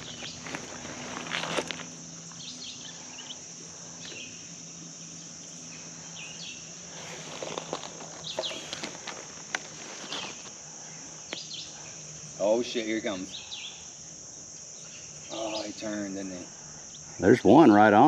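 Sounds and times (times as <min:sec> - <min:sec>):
insects droning: 0:00.0 - 0:18.0
bird chirps: 0:13.2 - 0:13.9.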